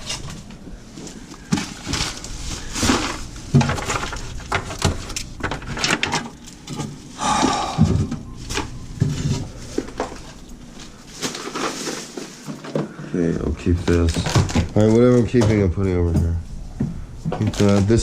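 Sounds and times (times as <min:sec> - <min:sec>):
food containers and jars clattering: 0:00.0 - 0:07.0, 0:11.0 - 0:13.1, 0:13.9 - 0:16.3.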